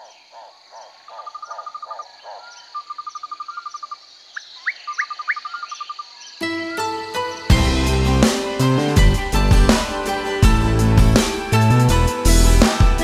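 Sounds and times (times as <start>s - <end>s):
songbirds singing: 0.0s - 7.8s.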